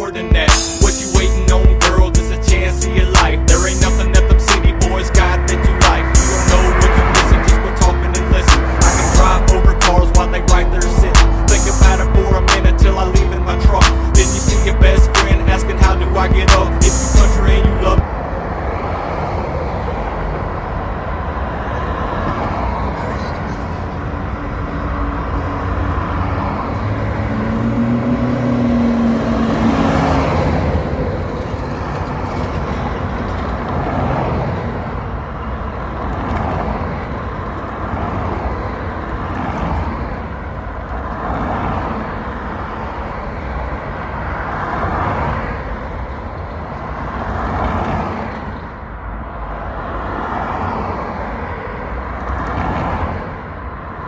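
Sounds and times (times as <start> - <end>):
low engine note: 0.0 - 18.2
vehicles passing: 0.0 - 54.0.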